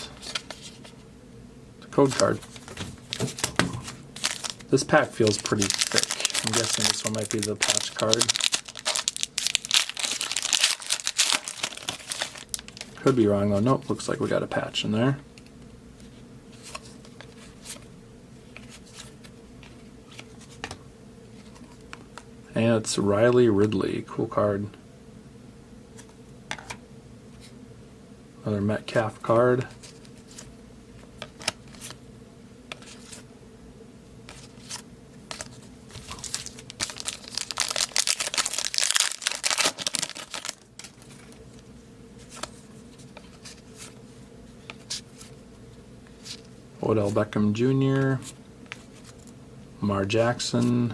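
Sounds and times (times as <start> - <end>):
trading cards clicking and rustling: 2.1 - 13.2, 34.3 - 41.6
foil wrapper tearing and crinkling: 3.0 - 13.2, 34.3 - 41.4.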